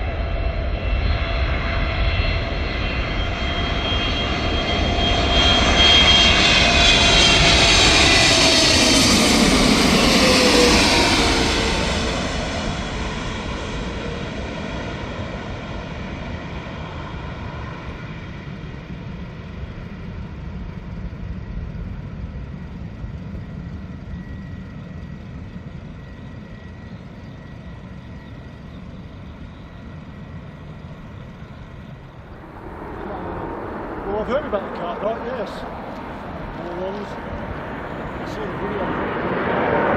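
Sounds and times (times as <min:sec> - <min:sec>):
jet engine landing: 0:00.0 - 0:39.9
low rumble: 0:28.3 - 0:39.9.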